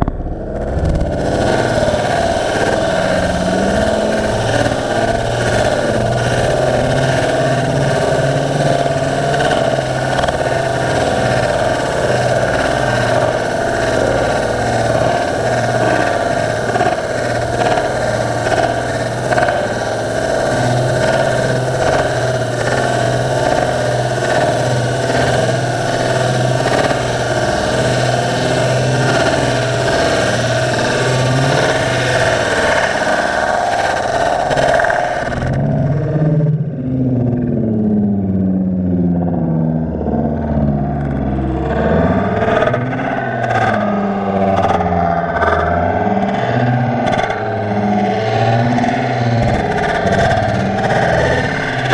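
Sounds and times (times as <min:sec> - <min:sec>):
muffled ice auger engine drone: 0:00.0 - 0:51.9
auger grinding through ice: 0:00.6 - 0:35.4.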